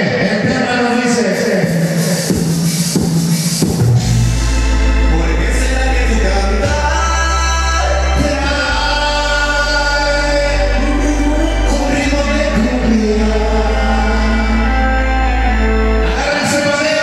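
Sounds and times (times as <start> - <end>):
deep held bass notes: 0.0 - 17.0
loud dance music: 0.0 - 17.0
singing: 5.1 - 17.0.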